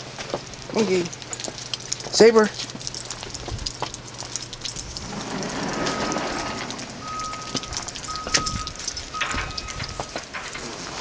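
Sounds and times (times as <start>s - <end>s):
vehicle reversing alarm beeps: 5.0s - 10.6s.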